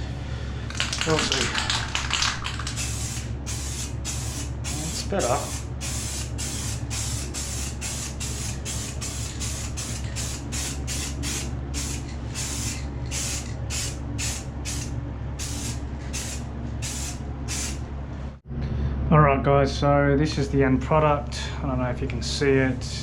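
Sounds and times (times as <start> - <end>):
steady low hum: 0.0 - 23.0
spray paint can hissing: 0.7 - 17.8.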